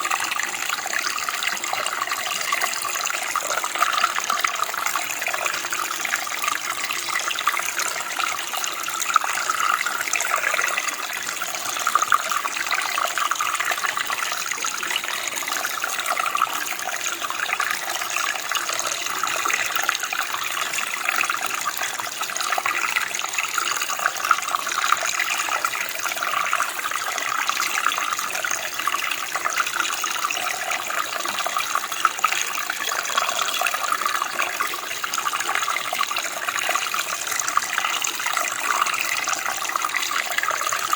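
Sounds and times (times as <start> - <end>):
stream flowing: 0.0 - 40.9.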